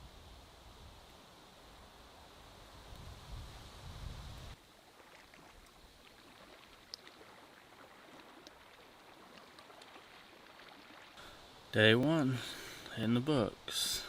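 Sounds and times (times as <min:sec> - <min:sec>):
low wind rumble on microphone: 0:02.6 - 0:04.6
water lapping: 0:04.7 - 0:11.4
small ticks: 0:06.8 - 0:07.2, 0:08.2 - 0:10.0.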